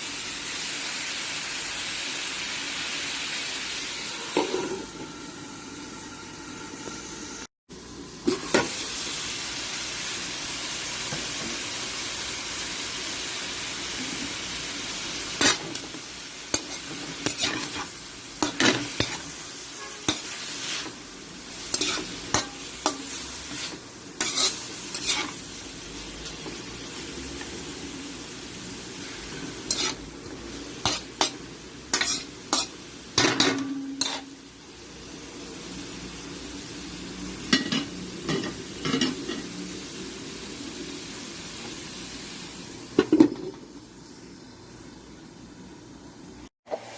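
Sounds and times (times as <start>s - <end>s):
food sizzling in a pan: 0.0s - 46.9s
spatula scraping and knocking pan: 32.0s - 34.3s.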